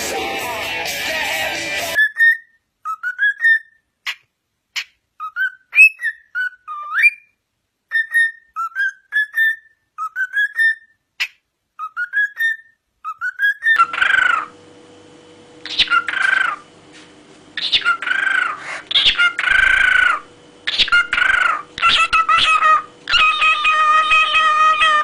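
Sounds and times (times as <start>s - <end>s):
parrot whistling: 1.8s - 4.2s, 5.2s - 7.3s, 7.9s - 11.0s, 11.8s - 14.5s, 15.6s - 16.6s, 17.6s - 25.0s.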